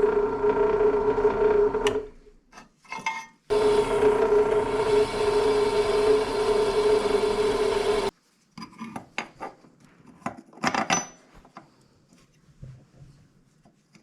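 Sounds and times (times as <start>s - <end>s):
power tool humming on steel: 0.0s - 2.1s, 3.5s - 8.1s.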